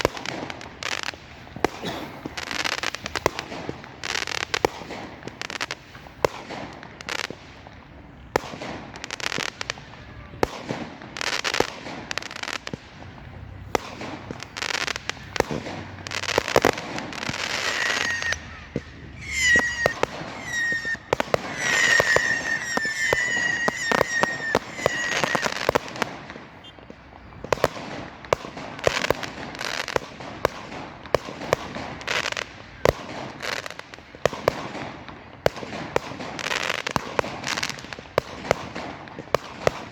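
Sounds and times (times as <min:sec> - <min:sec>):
fireworks bangs and cracks: 0:00.0 - 0:39.9
firework whistles: 0:13.7 - 0:28.0.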